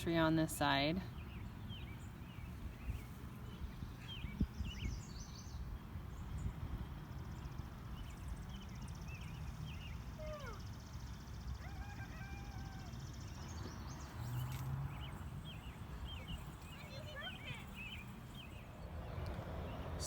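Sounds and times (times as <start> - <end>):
songbirds chirping: 0.0 - 20.0
bird trill: 8.0 - 19.8.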